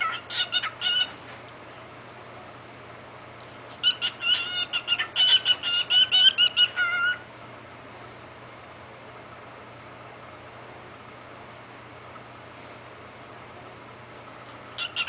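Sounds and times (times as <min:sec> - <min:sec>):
cockatiel chattering: 0:00.0 - 0:01.2, 0:03.7 - 0:07.2, 0:14.8 - 0:15.0.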